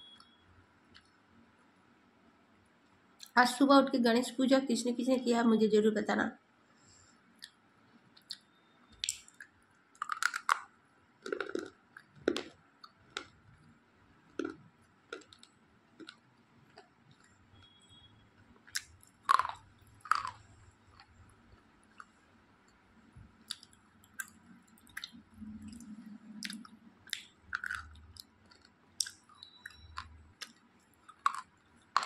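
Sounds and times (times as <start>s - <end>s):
person chewing: 8.2s - 17.8s, 18.6s - 32.0s
mouth clicks: 23.5s - 31.5s.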